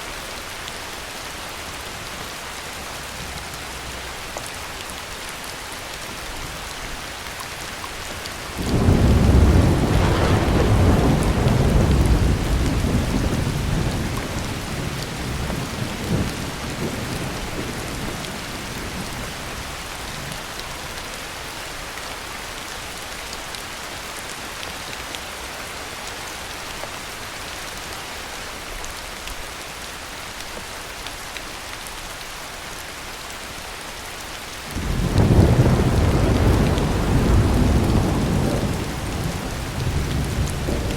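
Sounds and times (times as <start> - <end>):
heavy rain: 0.0 - 40.9
thunder rumbling: 8.5 - 19.4, 34.8 - 40.9.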